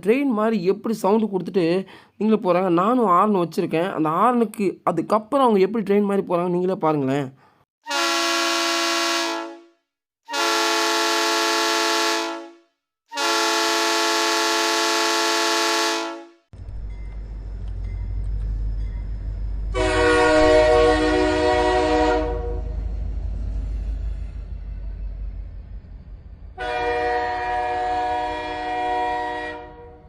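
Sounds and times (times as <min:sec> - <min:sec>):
train horn blasts: 0:07.9 - 0:16.5, 0:19.7 - 0:22.8, 0:26.6 - 0:30.0
running train rumble: 0:16.6 - 0:30.0.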